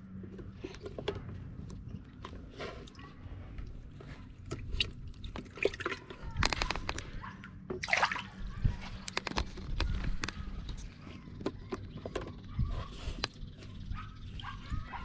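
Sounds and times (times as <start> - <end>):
water sloshing and splashing: 0.4 - 12.2.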